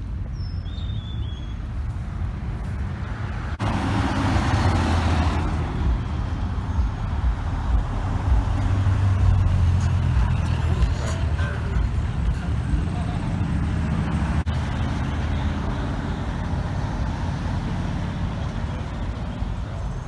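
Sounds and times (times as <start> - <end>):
road and tyre noise: 0.0 - 20.0
cars driving past: 1.5 - 20.0.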